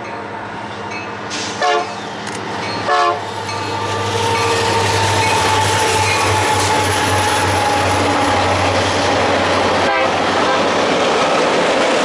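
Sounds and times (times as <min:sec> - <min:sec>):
locomotive horn toots: 0:01.6 - 0:02.0, 0:02.8 - 0:08.8, 0:09.8 - 0:10.7
steady high tone: 0:02.6 - 0:08.6.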